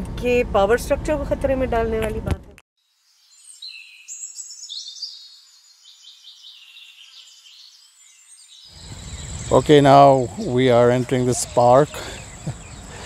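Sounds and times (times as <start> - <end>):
birds chirping and trilling: 2.8 - 13.0
faint high insect whine: 2.8 - 13.0.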